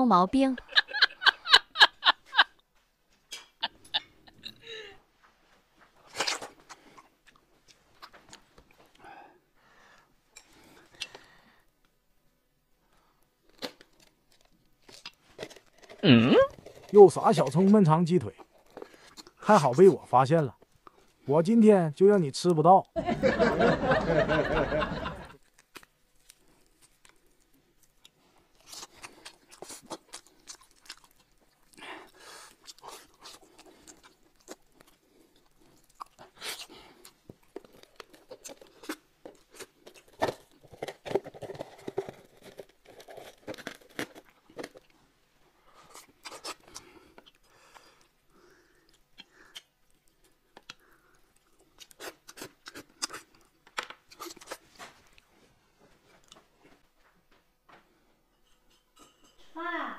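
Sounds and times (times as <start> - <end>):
man chewing chicken: 25.4 - 45.0, 45.6 - 55.3
wet smacks and clicks: 48.9 - 50.9.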